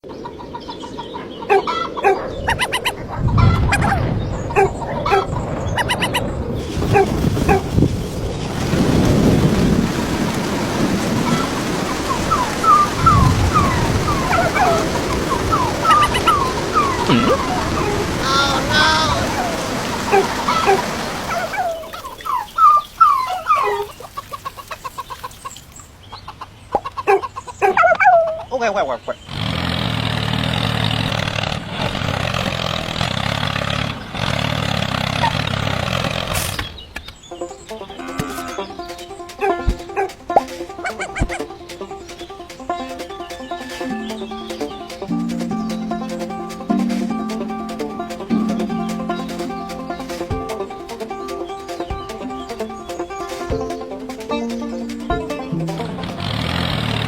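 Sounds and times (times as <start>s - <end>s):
chickens clucking: 0.0s - 8.4s, 9.0s - 29.3s, 36.4s - 57.0s
poultry squawking: 0.4s - 7.7s, 12.1s - 29.5s, 37.3s - 56.7s.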